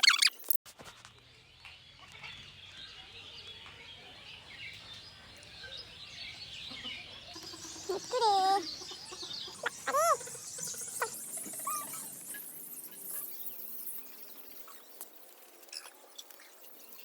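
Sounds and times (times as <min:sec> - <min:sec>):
faint bird chirping: 0:01.5 - 0:17.0.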